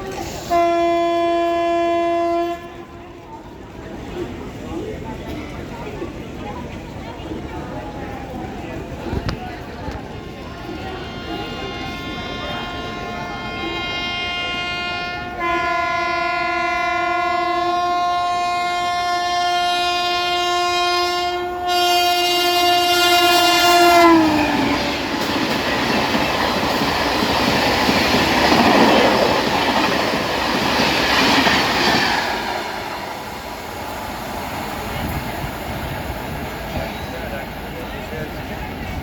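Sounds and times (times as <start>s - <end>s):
train coaches rushing and rattling: 0.0s - 39.0s
train horn blast: 0.2s - 3.3s, 10.1s - 25.6s.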